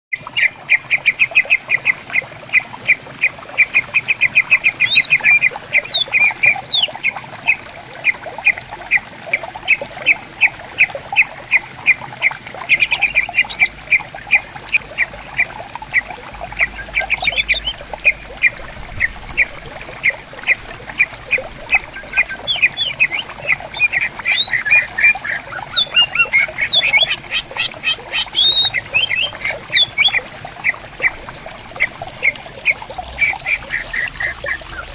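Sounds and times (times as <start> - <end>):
running water: 0.1 - 34.9
birds calling in short notes: 22.0 - 30.2.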